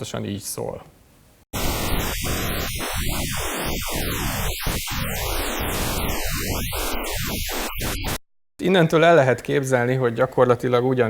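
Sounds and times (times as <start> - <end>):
shifting pink noise hiss: 1.6 - 8.2.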